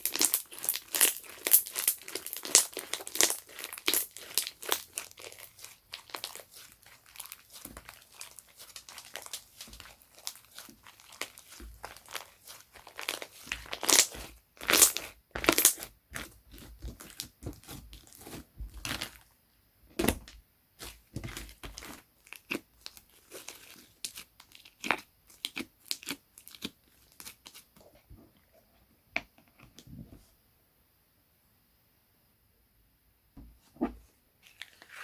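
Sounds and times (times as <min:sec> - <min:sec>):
slime squished by hand: 0:00.0 - 0:19.3, 0:20.0 - 0:27.6.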